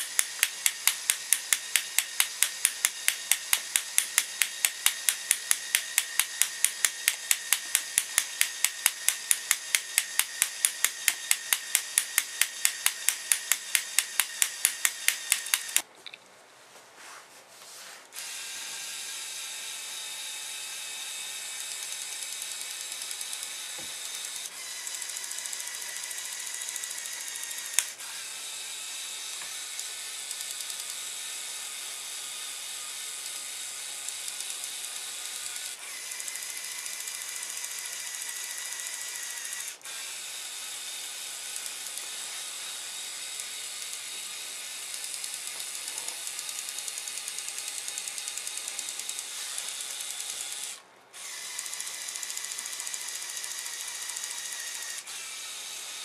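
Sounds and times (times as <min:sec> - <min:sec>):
toy truck motors and gears whirring: 0:00.0 - 0:15.9, 0:18.0 - 0:56.0
sharp click: 0:00.0 - 0:16.2, 0:27.7 - 0:28.0.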